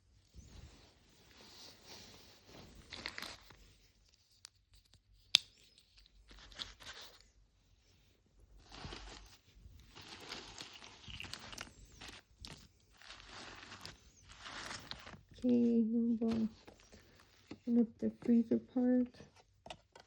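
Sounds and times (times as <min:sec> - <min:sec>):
plastic packaging rustling: 0:01.3 - 0:03.7, 0:06.2 - 0:07.2, 0:08.6 - 0:17.7.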